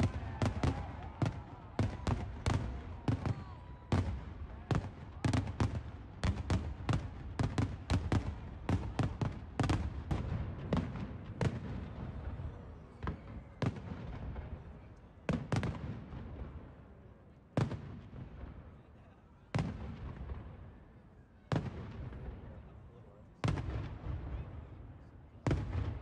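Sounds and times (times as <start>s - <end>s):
fireworks bangs: 0.0s - 16.7s.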